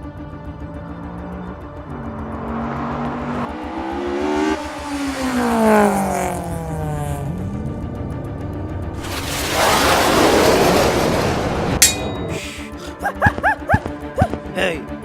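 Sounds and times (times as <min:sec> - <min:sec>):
vehicle engine changing pitch: 0:00.5 - 0:09.0.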